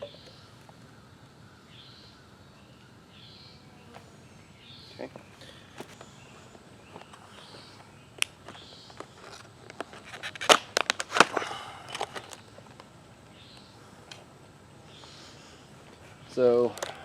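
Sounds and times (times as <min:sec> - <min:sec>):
faint outdoor background: 0:00.0 - 0:17.0
sharp clicks and crackles: 0:08.2 - 0:12.9.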